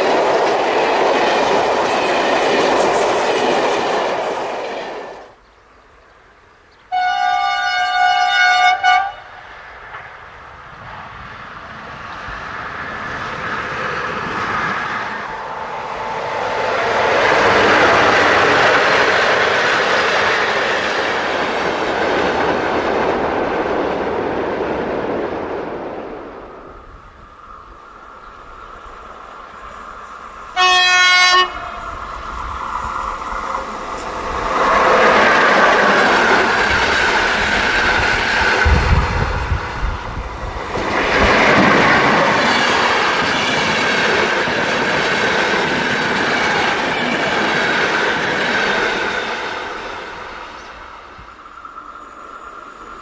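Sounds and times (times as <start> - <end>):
train rushing past: 0.0 - 5.4, 6.9 - 53.0
train horn blast: 6.9 - 9.4, 30.6 - 31.9.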